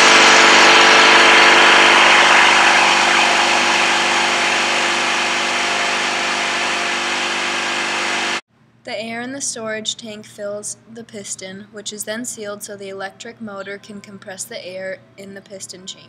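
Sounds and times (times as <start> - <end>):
air compressor motor hum: 0.0 - 8.4.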